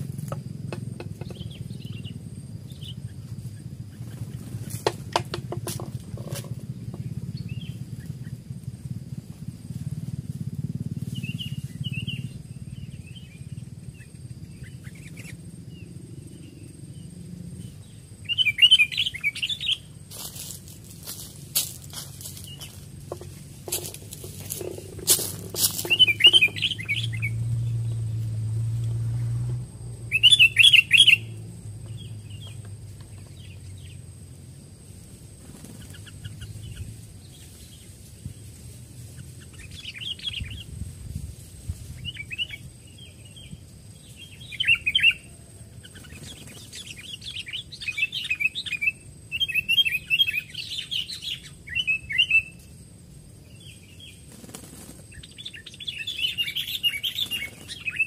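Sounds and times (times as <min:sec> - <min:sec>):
birds chattering calls: 0:00.0 - 0:40.9, 0:41.9 - 0:58.0
low rumble: 0:19.8 - 0:35.4.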